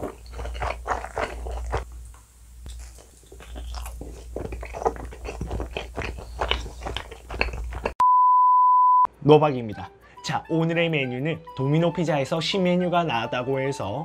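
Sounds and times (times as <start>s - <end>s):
chewing with wet mouth clicks: 0.0s - 8.0s
crunching: 0.0s - 8.0s.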